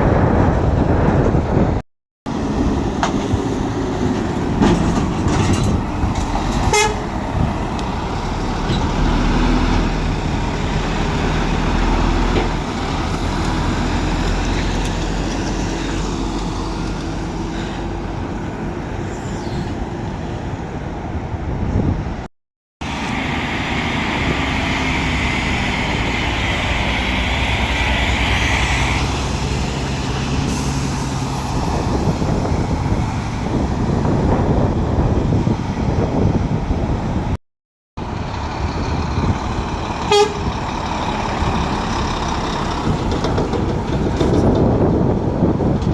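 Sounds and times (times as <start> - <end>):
lorry diesel engines droning: 2.3 - 22.2, 22.8 - 37.4, 38.0 - 45.9
air brake hiss: 30.5 - 31.2.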